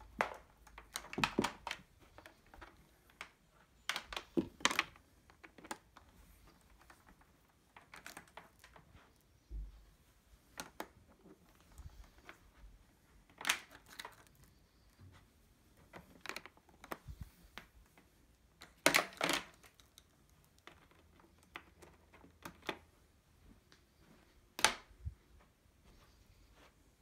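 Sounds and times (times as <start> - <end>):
clicks and knocks of handling: 0.1 - 9.8, 10.4 - 15.0, 15.7 - 22.9.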